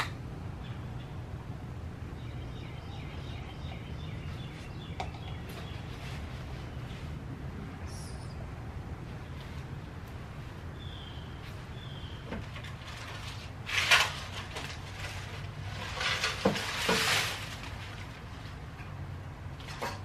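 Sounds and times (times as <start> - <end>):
low steady hum: 0.0 - 20.0
bird chirping: 2.1 - 7.0, 7.8 - 8.6, 10.7 - 12.4
dry leaves rustling under rake: 5.5 - 7.3, 12.4 - 19.0.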